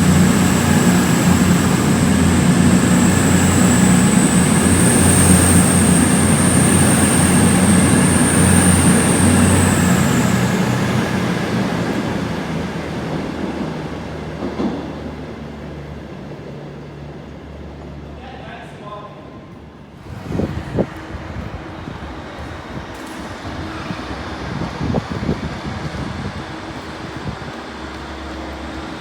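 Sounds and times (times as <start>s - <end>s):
high steady whine: 0.0s - 12.6s
low hum: 0.0s - 14.3s
passenger train passing: 0.0s - 29.0s.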